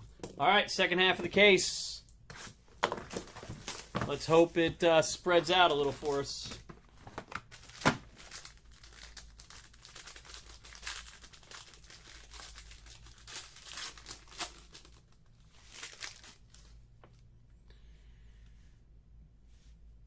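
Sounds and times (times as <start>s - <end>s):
plastic wrapping crinkling and tearing: 5.6s - 16.7s.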